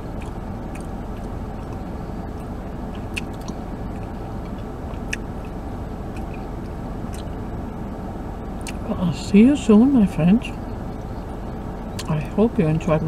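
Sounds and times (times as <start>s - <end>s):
person chewing: 0.0s - 7.4s, 8.6s - 8.8s
car interior rumble: 0.0s - 13.0s
wet mouth clicks: 0.1s - 6.4s, 7.1s - 7.4s, 8.6s - 8.8s.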